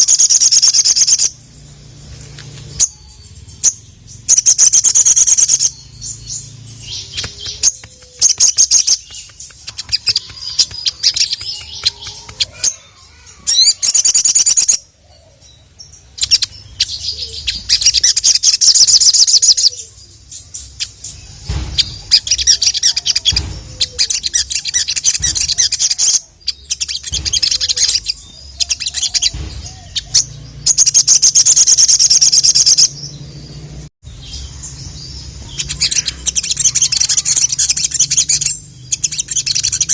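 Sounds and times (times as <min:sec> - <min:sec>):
songbird trilling: 0:02.7 - 0:33.3, 0:34.1 - 0:39.9
bird ticking chips: 0:06.6 - 0:14.6.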